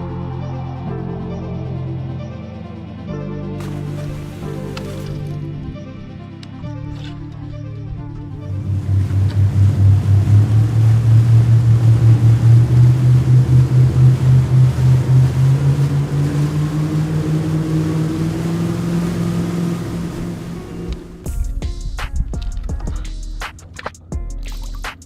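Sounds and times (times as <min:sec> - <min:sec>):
boat motor running: 0:03.6 - 0:21.5.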